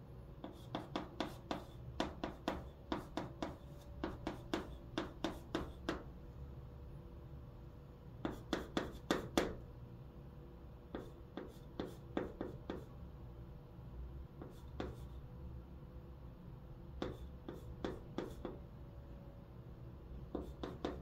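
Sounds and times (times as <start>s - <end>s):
chalk writing on blackboard: 0.4s - 6.1s, 8.2s - 9.6s, 10.9s - 12.9s, 14.4s - 15.3s, 17.0s - 18.6s, 20.3s - 21.0s.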